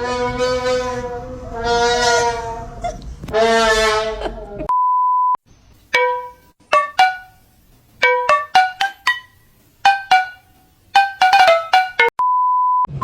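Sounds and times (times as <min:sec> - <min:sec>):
plucked note melody: 0:05.9 - 0:12.2.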